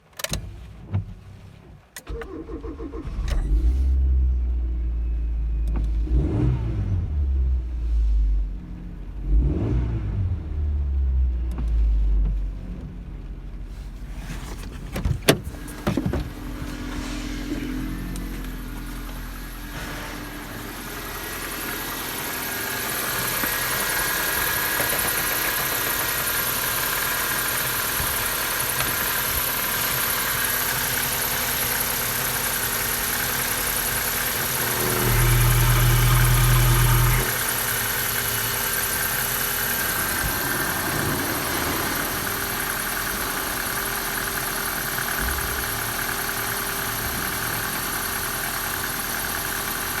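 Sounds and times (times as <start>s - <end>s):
car engine idling: 10.4s - 50.0s.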